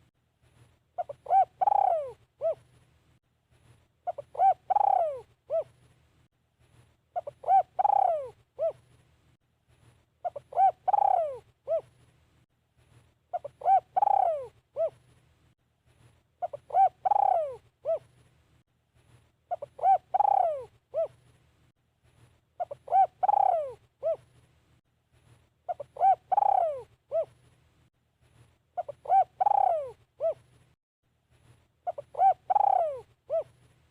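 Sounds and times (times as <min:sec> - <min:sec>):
dove cooing: 0:01.0 - 0:02.7, 0:04.0 - 0:05.8, 0:07.2 - 0:08.8, 0:10.2 - 0:11.9, 0:13.3 - 0:15.0, 0:16.4 - 0:18.1, 0:19.5 - 0:21.2, 0:22.6 - 0:24.3, 0:25.7 - 0:27.4, 0:28.8 - 0:30.5, 0:31.8 - 0:33.6.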